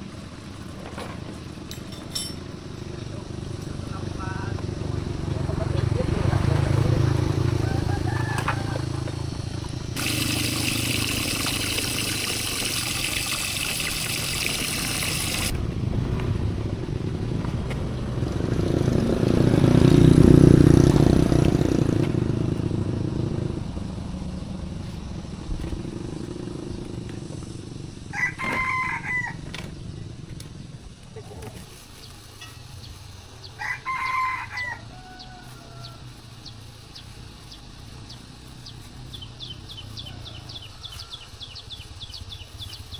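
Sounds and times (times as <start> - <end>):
rooster crowing: 7.2 - 9.3, 28.1 - 29.5, 33.6 - 36.2, 40.0 - 41.6
steady hiss: 10.0 - 15.5
low rumble: 15.5 - 26.8.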